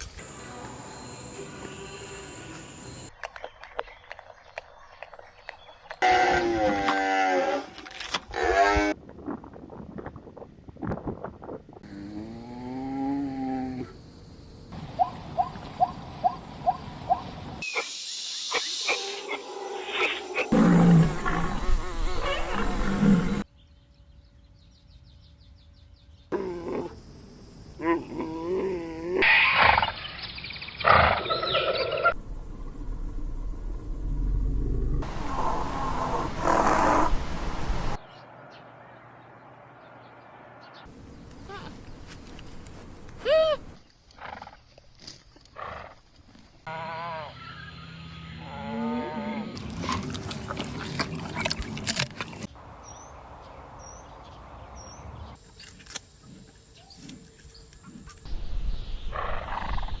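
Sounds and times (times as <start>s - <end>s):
animal calls: 14.7s - 17.9s, 18.5s - 23.4s, 41.2s - 44.4s, 46.7s - 52.5s
wavering pitched animal calls: 18.5s - 23.4s, 43.2s - 43.8s
rough growling animal call: 19.8s - 23.5s, 34.0s - 37.2s, 48.4s - 52.5s.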